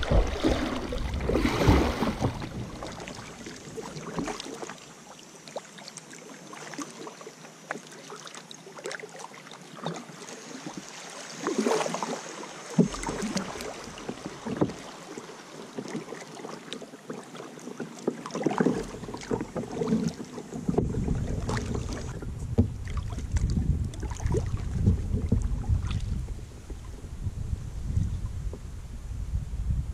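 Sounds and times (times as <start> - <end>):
wind buffeting microphone: 0.0 - 3.4, 20.6 - 29.9
paddle splashes: 0.0 - 27.0
water swishing against hull: 0.0 - 28.8.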